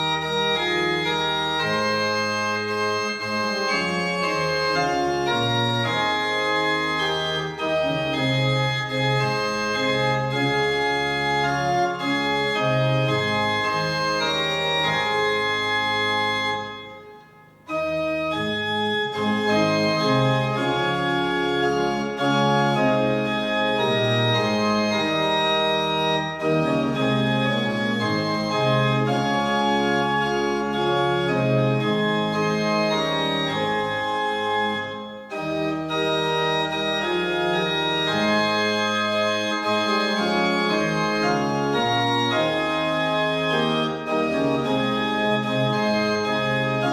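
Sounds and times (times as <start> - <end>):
organ playing slow chords: 0.0 - 46.9.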